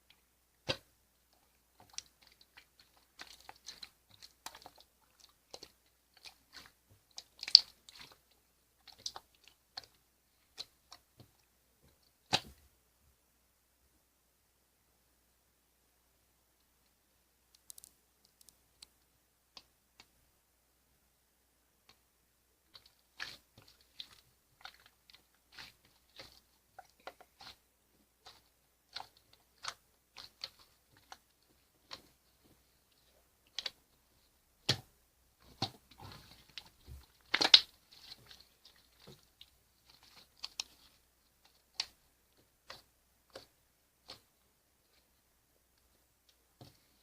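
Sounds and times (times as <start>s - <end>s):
slime squished by hand: 1.8s - 11.3s, 22.7s - 32.2s, 34.6s - 44.4s.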